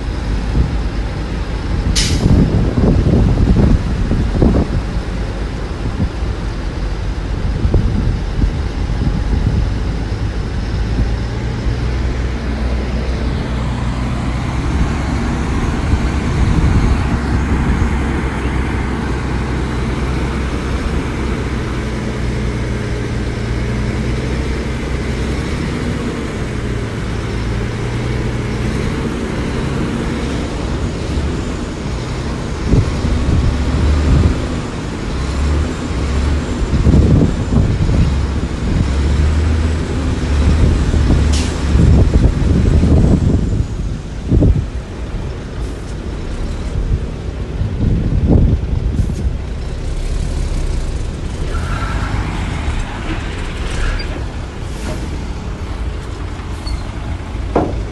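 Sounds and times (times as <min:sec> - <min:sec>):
diesel engines running: 0:00.0 - 0:57.9
knocks and rattles: 0:57.4 - 0:57.9.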